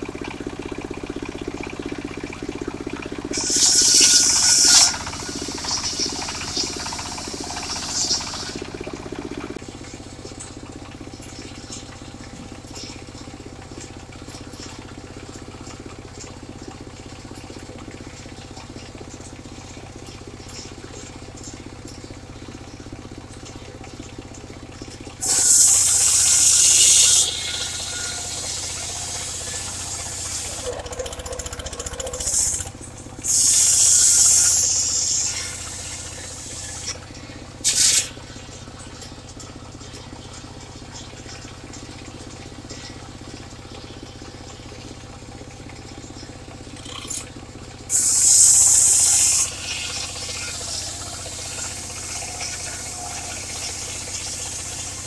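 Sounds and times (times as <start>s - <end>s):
sawmill running: 0.0s - 55.0s
saw blade cutting wood: 3.3s - 8.7s, 25.2s - 37.0s, 47.9s - 55.0s.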